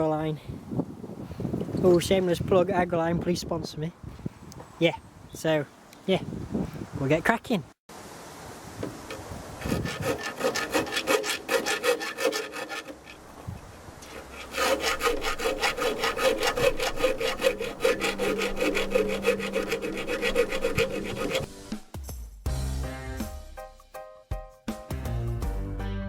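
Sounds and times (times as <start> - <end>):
hand file rasping: 9.1 - 13.2, 14.0 - 21.5.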